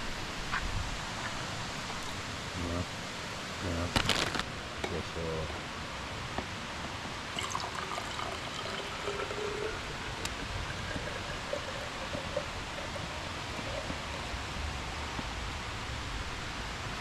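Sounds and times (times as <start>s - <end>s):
stream flowing: 4.5s - 17.0s.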